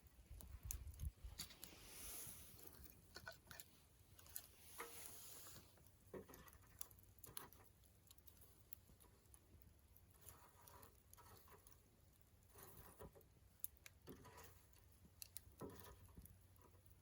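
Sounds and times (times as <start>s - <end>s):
campfire crackling and popping: 0.0s - 10.3s
soft hissing: 1.2s - 3.1s, 4.5s - 6.0s.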